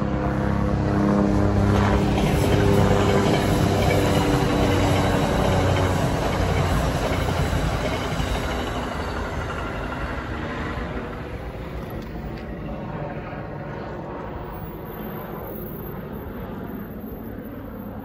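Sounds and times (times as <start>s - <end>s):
train wheels on rails over bridge: 0.0s - 13.2s.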